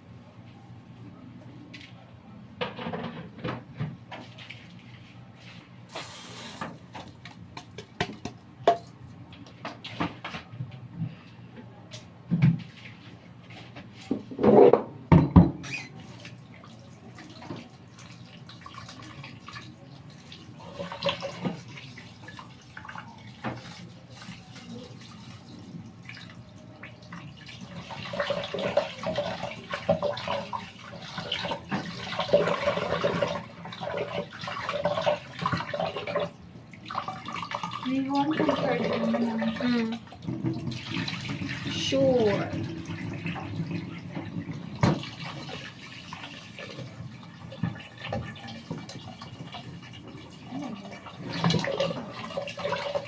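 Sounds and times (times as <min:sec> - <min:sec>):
tap water splashing in sink: 0:06.6 - 0:08.9, 0:20.3 - 0:25.4, 0:26.0 - 0:50.3, 0:51.0 - 0:53.0.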